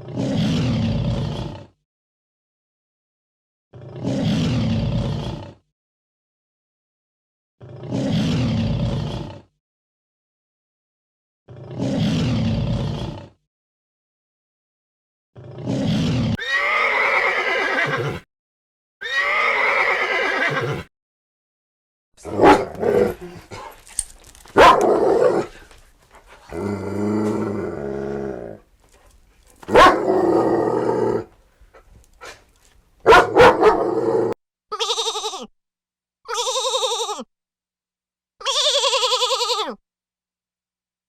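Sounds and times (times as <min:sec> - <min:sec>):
horse whinnying and neighing: 0:15.8 - 0:18.3, 0:19.0 - 0:20.9, 0:36.3 - 0:37.3.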